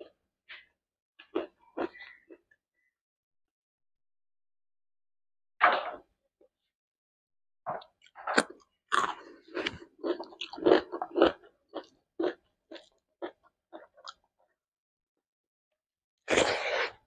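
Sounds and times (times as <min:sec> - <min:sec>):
chewing crunchy food: 0:00.5 - 0:02.5, 0:07.7 - 0:14.5.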